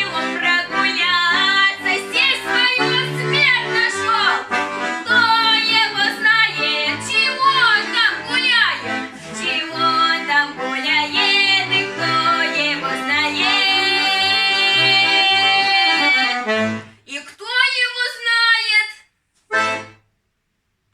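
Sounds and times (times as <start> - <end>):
girl singing folk song: 0.0 - 16.5
instrumental accompaniment: 0.0 - 17.0, 19.5 - 20.1.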